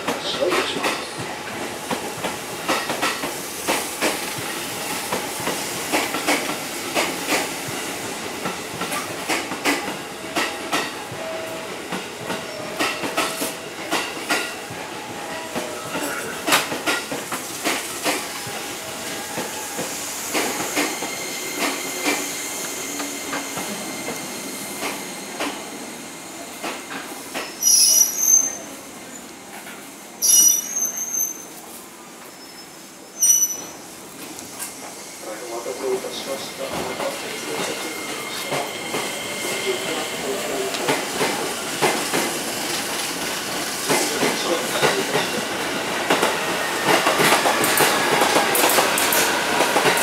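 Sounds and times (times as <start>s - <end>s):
train wheels clacking over joints: 0.0s - 24.2s, 36.4s - 50.0s
shrill wheel squeal: 27.5s - 28.8s, 30.2s - 31.6s, 32.2s - 33.8s.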